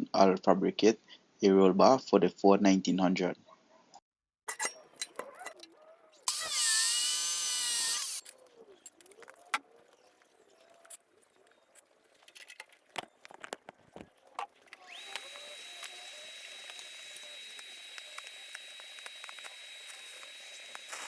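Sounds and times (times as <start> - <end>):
handheld power tool running: 6.2 - 8.3, 14.5 - 21.0.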